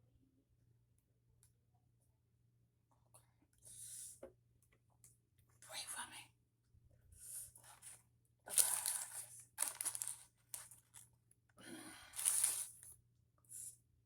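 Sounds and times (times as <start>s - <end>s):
paper wrapping crinkling and tearing: 8.5s - 11.0s, 12.2s - 12.8s.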